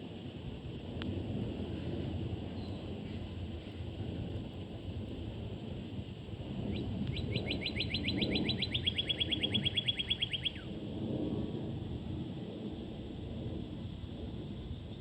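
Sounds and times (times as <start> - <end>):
songbird trill: 2.5 - 3.0, 6.6 - 10.8.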